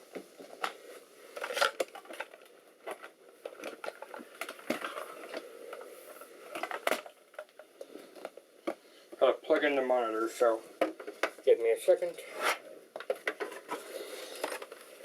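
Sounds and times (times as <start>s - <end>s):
rustling scrapes: 12.2s - 12.7s.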